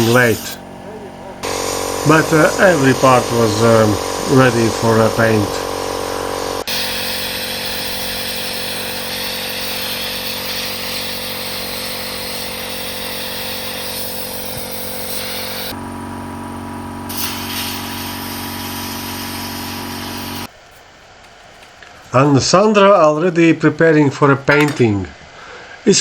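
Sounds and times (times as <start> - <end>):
sandblaster hiss: 0.0 - 20.5
air compressor hum: 0.0 - 22.3.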